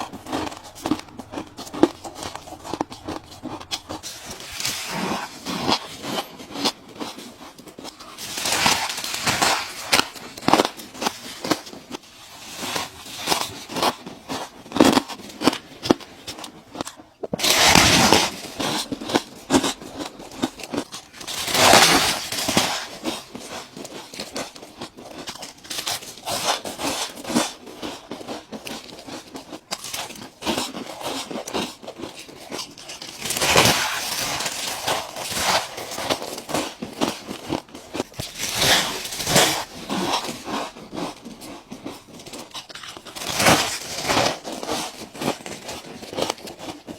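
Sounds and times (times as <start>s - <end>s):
ice cubes crunching: 0.0s - 46.9s.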